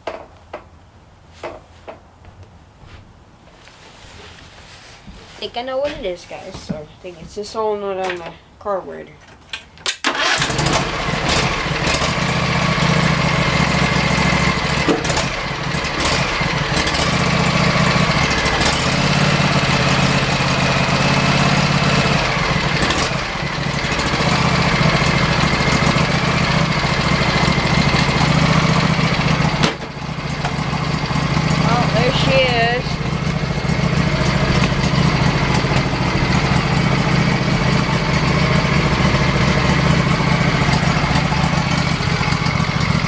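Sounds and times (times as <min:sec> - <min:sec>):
riding mower engine running: 0:10.1 - 0:43.0.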